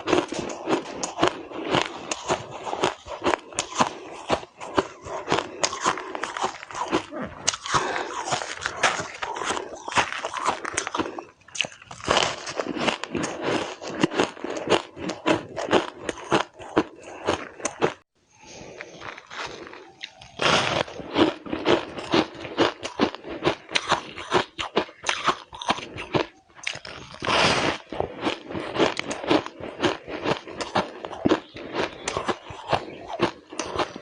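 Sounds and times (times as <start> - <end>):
crunching shaved ice: 0.0 - 18.0, 18.7 - 34.0.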